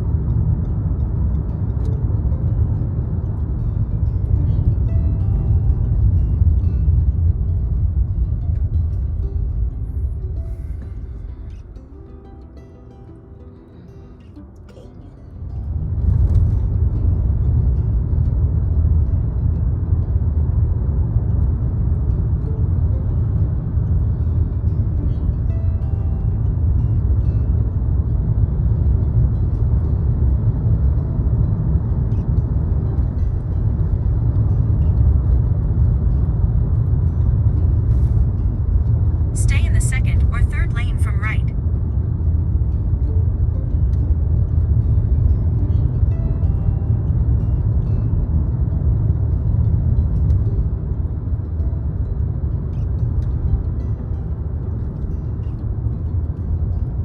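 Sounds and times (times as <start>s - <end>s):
car driving road rumble: 0.0s - 57.0s.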